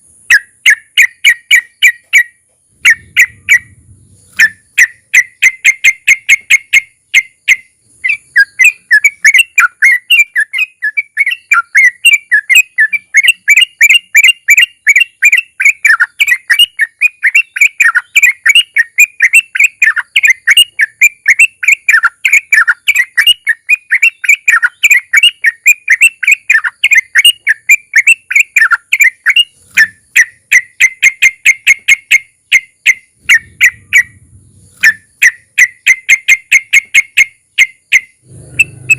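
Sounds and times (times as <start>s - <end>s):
bulbul singing rapid song: 0.0s - 38.9s.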